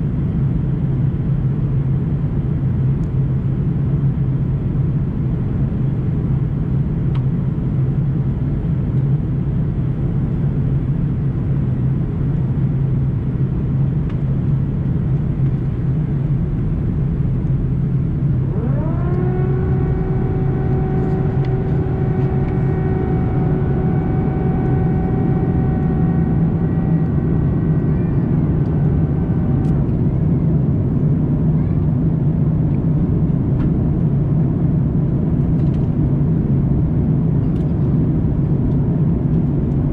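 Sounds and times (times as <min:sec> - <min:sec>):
aircraft cabin rumble: 0:00.0 - 0:39.9
rising whine: 0:15.2 - 0:32.8.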